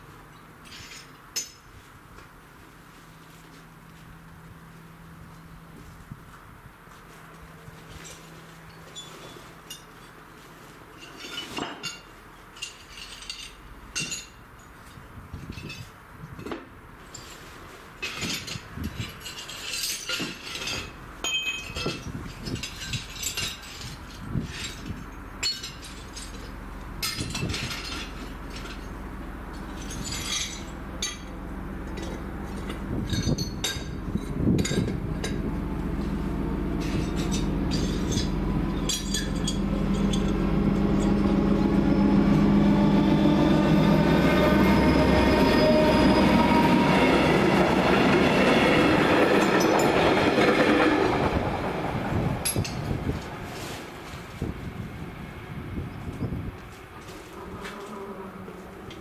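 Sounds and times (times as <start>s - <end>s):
rails clinking and pinging: 0.3s - 1.8s, 11.0s - 42.4s
oncoming train rumble: 17.8s - 59.0s.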